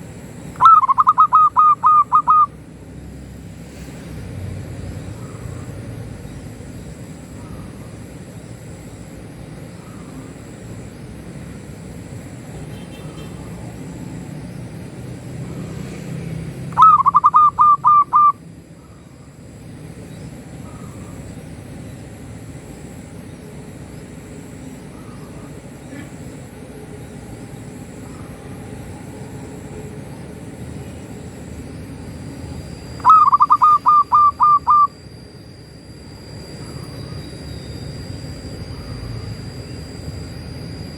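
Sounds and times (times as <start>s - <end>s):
dove cooing: 0.5s - 2.6s, 16.6s - 19.4s, 32.9s - 35.0s.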